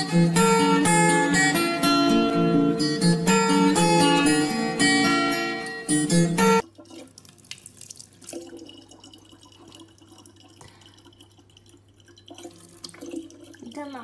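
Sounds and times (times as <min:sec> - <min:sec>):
tap water running into bottle: 0:06.6 - 0:14.0
water drips and splashes: 0:06.6 - 0:14.0.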